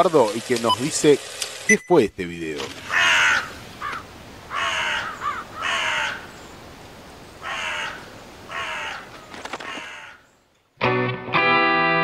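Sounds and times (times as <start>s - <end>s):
faint steady hiss: 0.0s - 9.3s
bird cawing: 2.8s - 6.6s, 7.4s - 10.4s.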